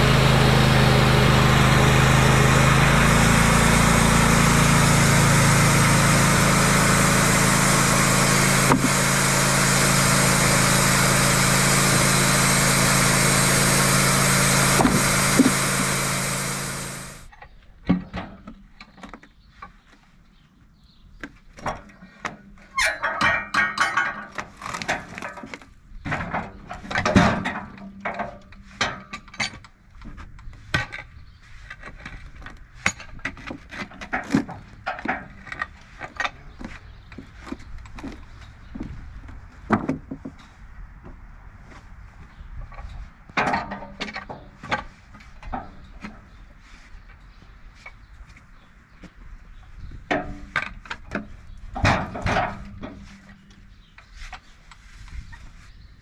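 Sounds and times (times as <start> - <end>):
sawmill engine running: 0.0 - 17.3.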